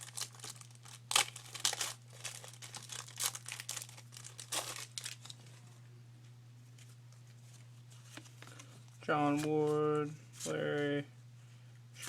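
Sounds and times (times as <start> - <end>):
card wrapper crinkling: 0.0 - 5.6
steady low hum: 0.0 - 12.0.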